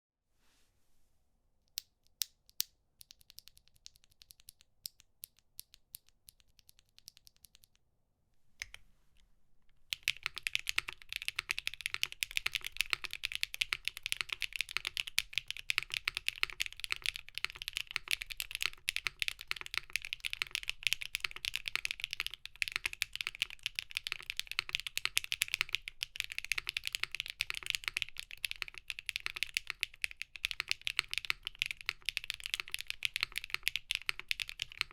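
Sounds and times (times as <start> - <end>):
mechanical keyboard typing: 9.9 - 34.9.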